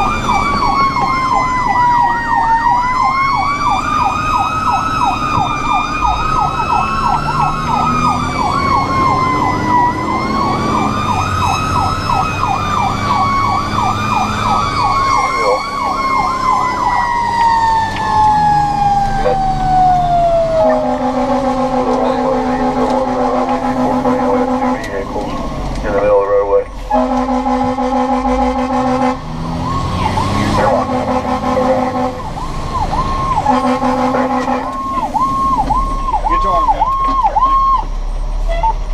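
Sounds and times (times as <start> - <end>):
siren wail rising and falling: 0.0 - 38.9
siren yelp: 0.0 - 38.9
truck engine rumble: 0.0 - 38.9
pulsing horn tone: 18.8 - 25.2, 26.1 - 29.3, 30.0 - 32.3, 33.0 - 37.8.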